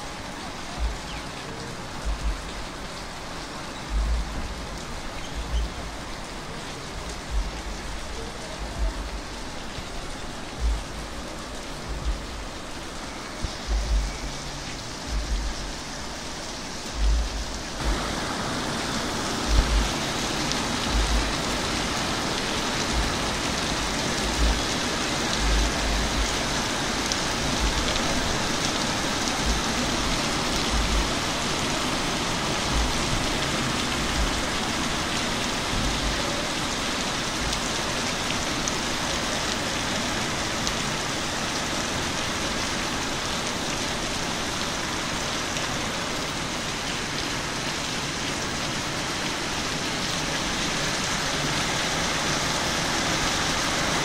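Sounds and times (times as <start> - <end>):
rain on pavement and trees: 0.0 - 54.0
low thumps: 10.6 - 11.1, 13.4 - 14.3, 15.1 - 15.7, 16.9 - 18.1.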